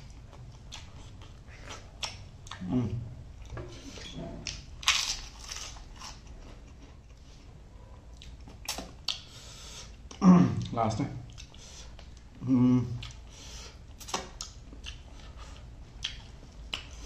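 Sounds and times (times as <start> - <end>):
crunching bites: 4.5 - 6.3
wet chewing mouth clicks: 16.0 - 17.0.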